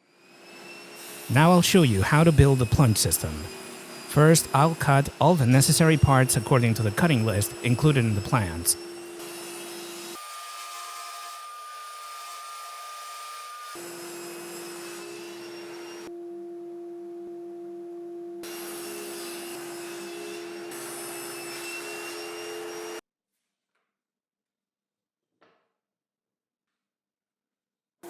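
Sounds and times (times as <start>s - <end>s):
power saw cutting wood: 0.0s - 16.1s, 18.4s - 23.0s.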